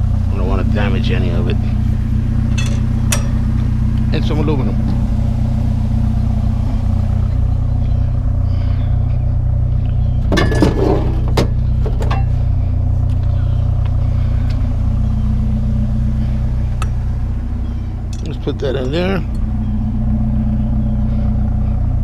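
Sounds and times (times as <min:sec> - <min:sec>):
truck engine idling: 0:00.0 - 0:22.0
scrap metal clanks and knocks: 0:02.5 - 0:03.5, 0:10.3 - 0:12.4.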